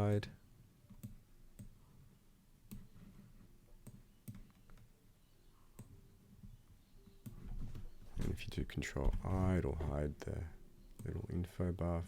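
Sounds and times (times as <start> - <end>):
computer mouse clicks: 0.9 - 1.8, 2.7 - 2.9, 3.8 - 4.9.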